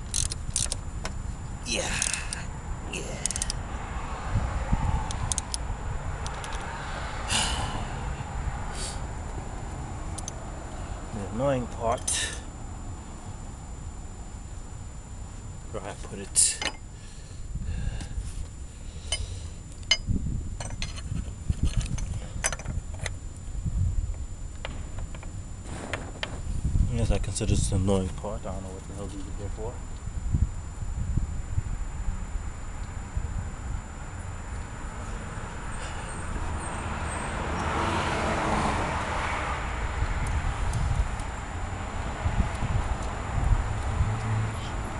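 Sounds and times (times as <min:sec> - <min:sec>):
steady low rumble: 0:00.0 - 0:37.2, 0:39.6 - 0:44.9
car passing by: 0:06.6 - 0:07.3, 0:36.8 - 0:39.8.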